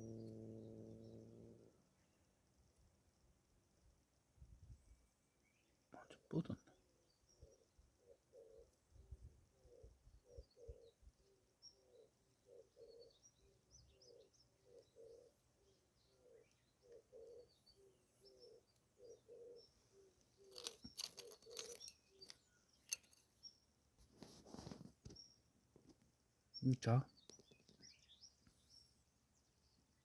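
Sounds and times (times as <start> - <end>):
faint dove cooing: 0.0 - 1.8, 6.0 - 21.9
small birds chirping: 0.0 - 2.2, 5.0 - 30.0
sharp clicks and rustles: 20.5 - 23.4.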